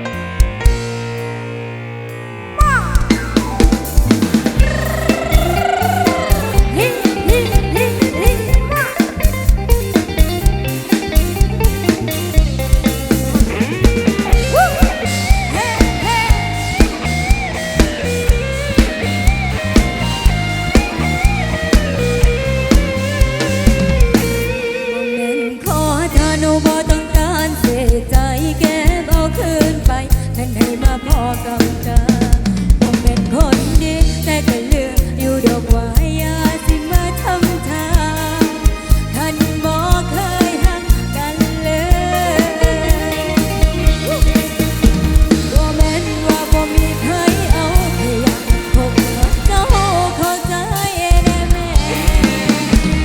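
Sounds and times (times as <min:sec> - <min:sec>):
drum kit beat: 0:00.0 - 0:01.4, 0:02.6 - 0:24.8, 0:25.7 - 0:53.0
wavering lead melody: 0:00.0 - 0:27.2, 0:36.4 - 0:53.0
live band music: 0:00.0 - 0:53.0
melody bending in pitch: 0:01.3 - 0:09.0, 0:13.4 - 0:25.6.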